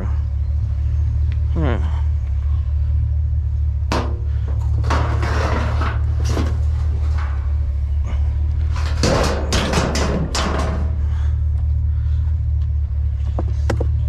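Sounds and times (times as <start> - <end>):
truck engine idling: 0.0 - 14.0
clunks of objects being moved: 3.9 - 11.0.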